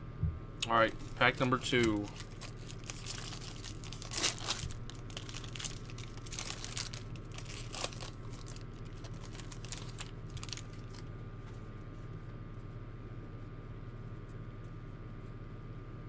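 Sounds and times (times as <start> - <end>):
steady low hum: 0.0 - 16.0
card pack wrapper crinkling: 0.7 - 11.1.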